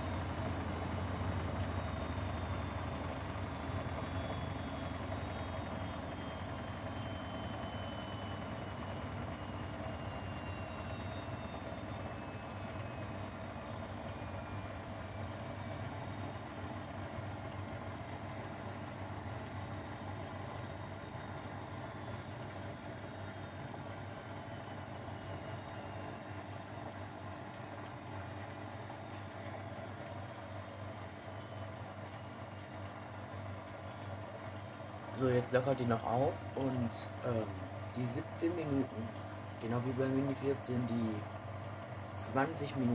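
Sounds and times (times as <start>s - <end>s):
washing machine spin winding down: 0.0s - 42.9s.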